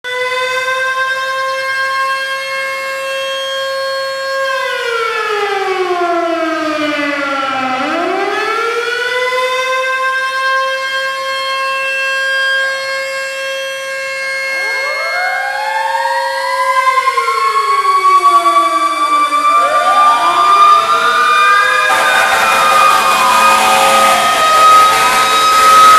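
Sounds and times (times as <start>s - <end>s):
mechanical siren wailing: 0.1s - 25.9s
second siren winding up: 14.4s - 25.9s.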